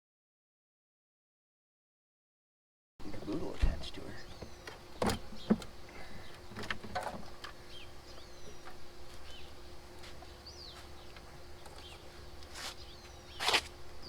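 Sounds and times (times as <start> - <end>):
small birds chirping: 3.0 - 14.0.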